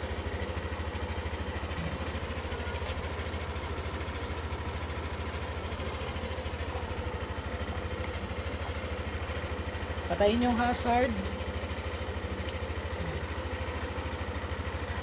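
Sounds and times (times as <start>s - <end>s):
scooter engine idling: 0.0s - 15.0s.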